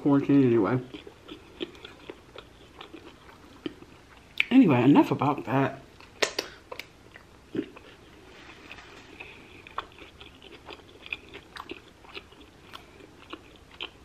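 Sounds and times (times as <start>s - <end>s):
chewing food: 0.6s - 4.5s, 5.8s - 14.0s
wet mouth clicks and smacks: 6.1s - 6.9s.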